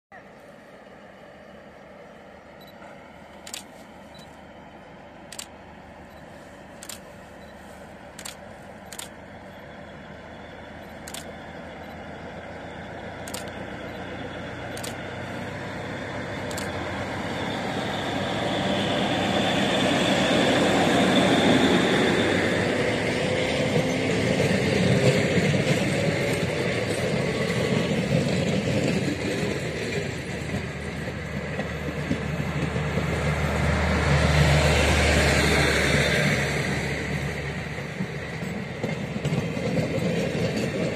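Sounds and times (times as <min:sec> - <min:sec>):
train passing close by: 0:00.1 - 0:40.9.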